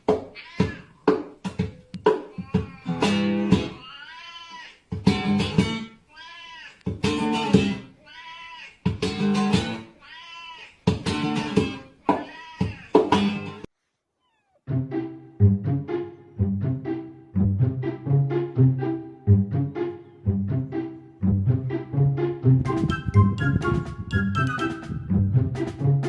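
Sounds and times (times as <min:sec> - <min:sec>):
cat meowing: 0:00.3 - 0:01.0, 0:03.7 - 0:04.8, 0:08.0 - 0:08.8, 0:12.1 - 0:13.0, 0:14.2 - 0:14.6
plucked guitar music: 0:02.9 - 0:03.8, 0:05.0 - 0:05.9, 0:06.9 - 0:07.8, 0:09.0 - 0:09.9, 0:10.9 - 0:11.8, 0:13.1 - 0:13.7, 0:14.7 - 0:26.0.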